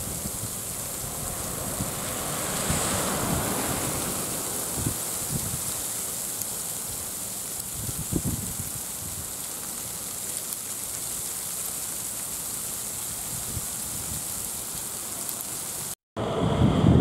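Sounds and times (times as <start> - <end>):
wind buffeting microphone: 0.0 - 5.8, 7.6 - 9.4, 13.2 - 14.6, 16.2 - 17.0
broad swell of noise: 0.0 - 7.3, 15.7 - 17.0
rain-like hiss: 0.0 - 16.0.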